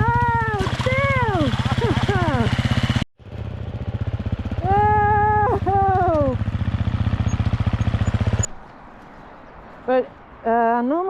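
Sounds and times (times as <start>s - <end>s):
dirt bike engine running: 0.0s - 8.8s.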